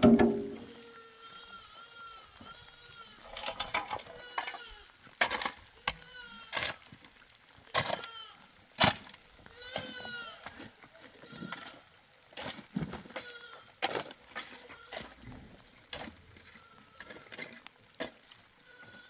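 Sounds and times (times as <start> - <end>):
sharp knocks: 0.0 - 0.7
goat bleating: 0.6 - 3.3, 4.0 - 4.9, 5.8 - 6.9, 7.8 - 8.4, 9.5 - 10.6, 11.2 - 11.9, 13.1 - 13.7, 14.5 - 15.2, 16.5 - 17.3, 18.6 - 19.0.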